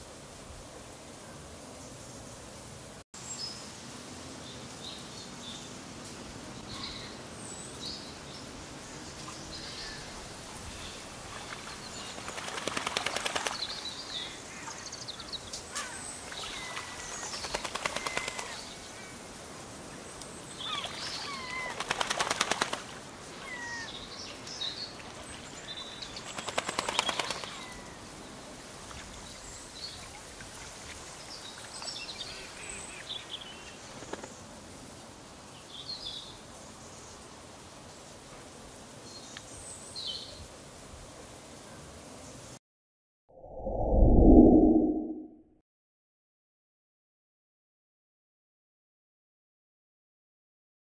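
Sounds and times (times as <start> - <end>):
bird rattles of rapid pulses: 12.2 - 13.9, 17.3 - 18.7, 21.3 - 22.9, 26.2 - 27.8.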